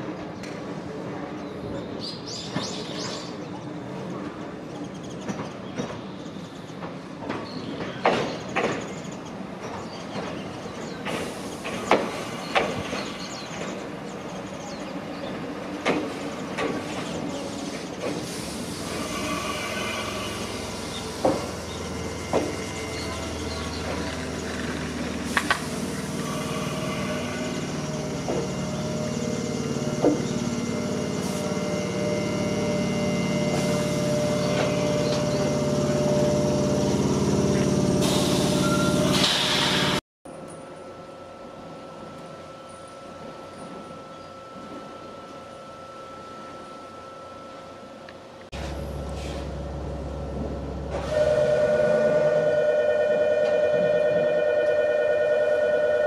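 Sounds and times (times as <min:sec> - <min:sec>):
train hum and whine: 0:00.0 - 0:56.0
train rolling rumble: 0:00.0 - 0:56.0
train wheels knocking over rail joints: 0:21.1 - 0:25.7, 0:29.9 - 0:30.5.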